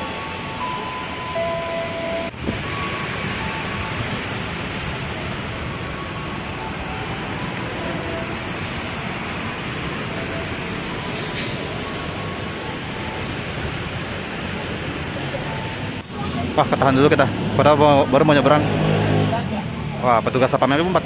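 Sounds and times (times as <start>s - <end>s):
rain hissing on roofs: 2.2s - 17.5s.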